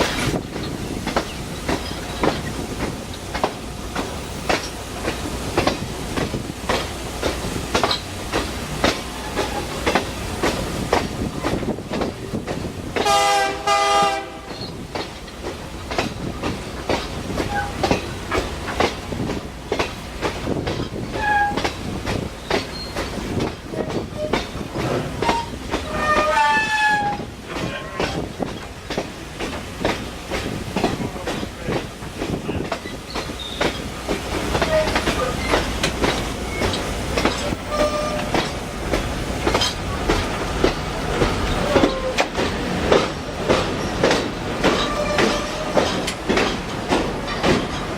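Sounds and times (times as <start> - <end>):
train wheels clicking over rail joints: 0.0 - 47.9
train horn: 13.0 - 14.7, 25.2 - 27.3, 37.6 - 38.5, 44.8 - 45.8.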